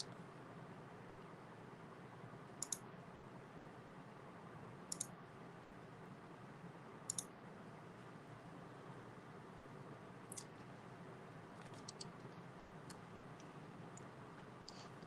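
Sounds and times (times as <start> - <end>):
faint steady hiss: 0.0 - 15.0
computer mouse clicks: 2.6 - 2.8, 4.9 - 5.1, 7.1 - 7.3, 10.3 - 10.5, 11.6 - 15.0.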